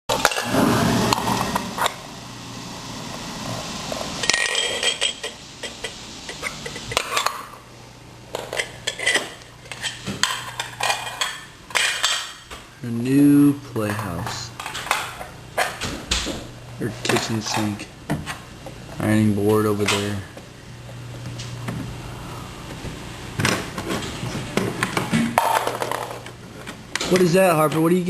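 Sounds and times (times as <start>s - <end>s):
toy dishes clattering: 4.2s - 7.4s, 8.3s - 12.4s.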